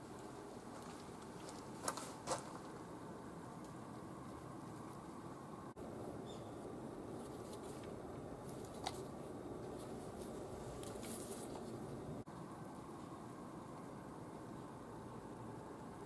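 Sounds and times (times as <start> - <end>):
soft rustles: 9.7 - 11.8.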